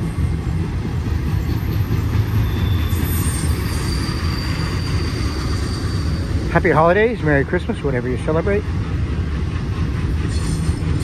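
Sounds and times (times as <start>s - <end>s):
freight train wheels rumbling: 0.0s - 11.0s
high wheel squeal: 1.5s - 7.2s, 10.2s - 11.0s.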